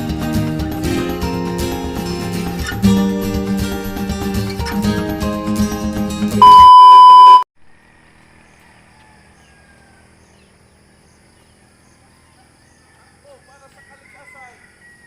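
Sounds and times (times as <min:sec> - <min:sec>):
electronic beep tone: 0:06.4 - 0:07.4.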